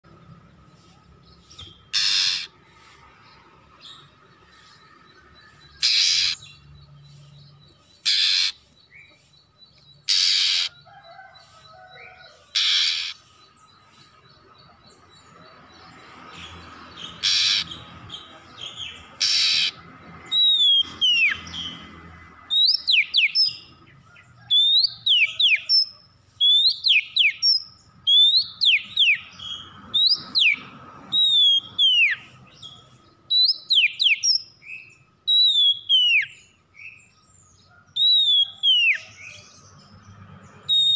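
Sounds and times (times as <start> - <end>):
bird harsh rasping calls: 0.8 - 4.8, 5.5 - 9.3, 9.9 - 14.0, 16.2 - 21.9, 40.6 - 40.9
bird whistled phrases: 30.0 - 32.3, 33.3 - 36.4, 38.0 - 39.1.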